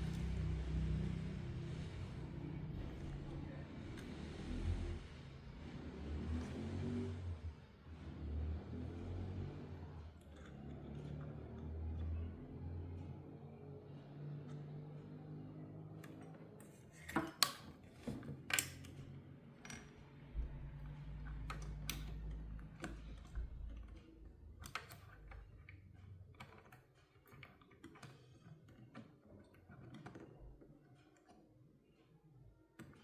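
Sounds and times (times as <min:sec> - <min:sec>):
small tools clicking and tapping: 0:10.0 - 0:13.4, 0:14.4 - 0:33.0.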